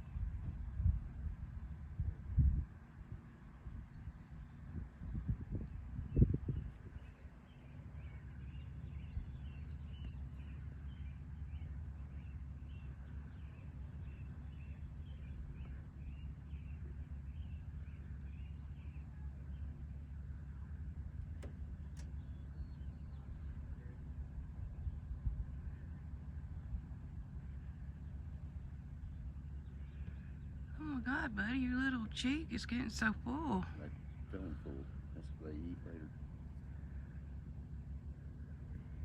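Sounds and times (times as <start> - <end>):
steady low rumble: 0.0 - 39.0.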